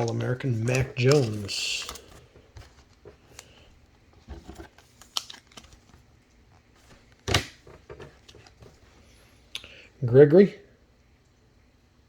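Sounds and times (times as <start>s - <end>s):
cards clicking and rustling: 0.0s - 3.6s, 4.3s - 6.1s.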